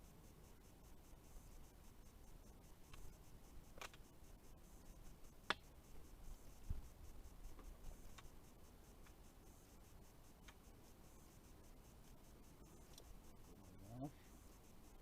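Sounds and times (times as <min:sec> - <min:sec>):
faint clicks: 0:02.8 - 0:04.2, 0:05.4 - 0:05.7, 0:07.5 - 0:10.8, 0:12.0 - 0:15.0
soft low thump: 0:06.6 - 0:06.9.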